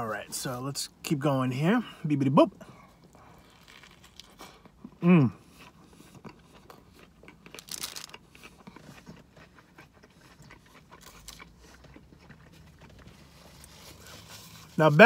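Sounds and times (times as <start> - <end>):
close chewing with wet mouth sounds: 2.6 - 15.0.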